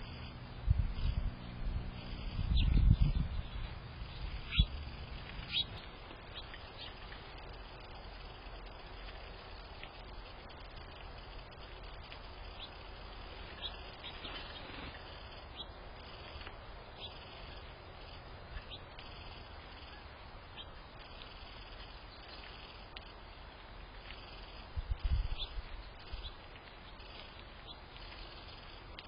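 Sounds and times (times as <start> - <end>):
low rumble: 0.0 - 8.7
outdoor background hiss: 0.0 - 29.0
small birds chirping: 0.0 - 29.0.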